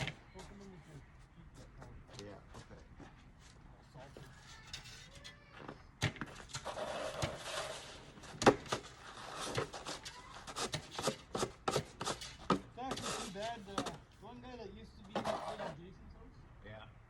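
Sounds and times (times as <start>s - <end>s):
snow shovel scraping: 6.4s - 14.0s, 15.1s - 15.8s
shovel knocking: 8.4s - 14.1s.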